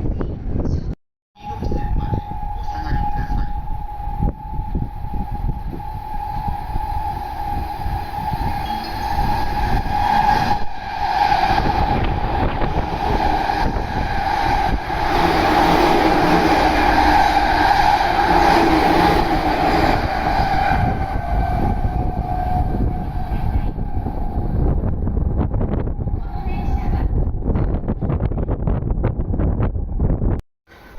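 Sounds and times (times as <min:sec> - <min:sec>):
electric train passing at speed: 0:01.4 - 0:30.9.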